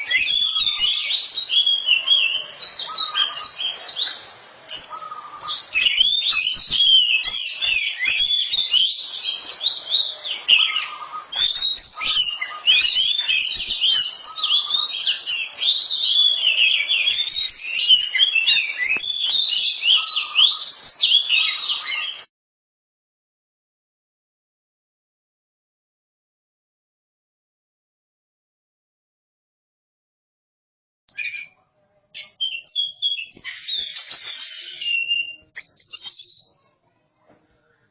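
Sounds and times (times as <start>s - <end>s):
birds singing whistled phrases: 0.0s - 22.3s, 31.1s - 31.6s, 32.2s - 36.7s.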